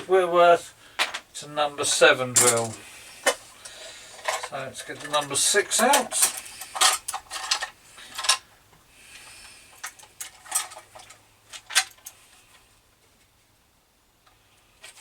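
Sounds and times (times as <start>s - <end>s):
metal drill bits clinking: 1.9s - 8.4s.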